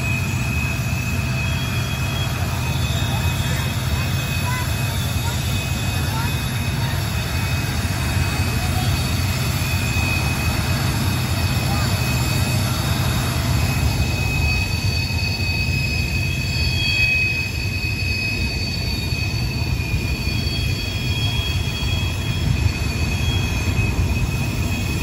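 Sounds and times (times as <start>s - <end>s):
freight train rumbling: 0.0s - 25.0s
train wheel squeal: 0.0s - 25.0s.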